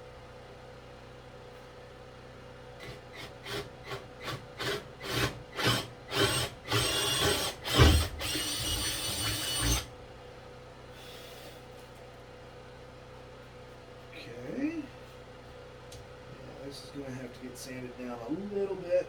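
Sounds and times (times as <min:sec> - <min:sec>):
power drill boring into wood: 0:02.8 - 0:09.9.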